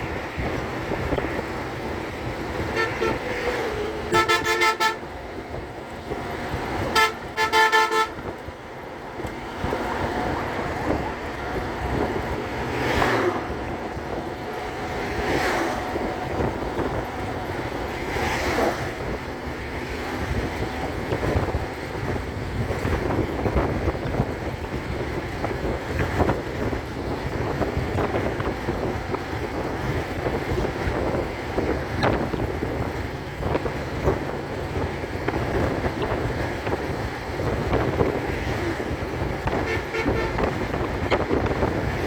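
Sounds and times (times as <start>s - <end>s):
steady traffic: 0.0s - 42.0s
vehicles rushing past: 0.0s - 42.0s
wind noise: 0.0s - 42.0s
vehicle horns honking: 2.6s - 3.4s, 4.0s - 5.1s, 6.8s - 8.4s, 39.4s - 41.4s.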